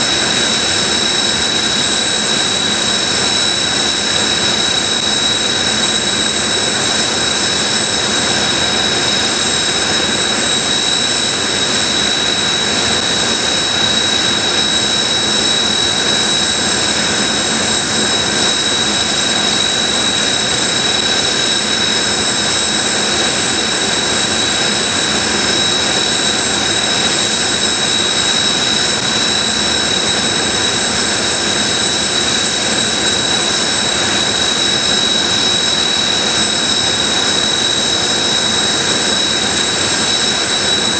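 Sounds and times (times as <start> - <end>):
jet engines idling: 0.0 - 40.9.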